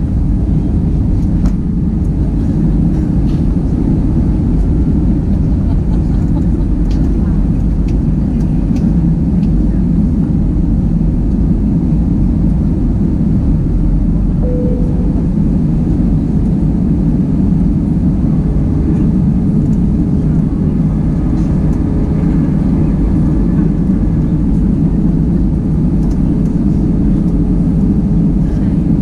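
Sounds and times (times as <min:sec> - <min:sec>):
airplane cabin engine rush: 0:00.0 - 0:29.0
faint steady tone: 0:14.4 - 0:16.0.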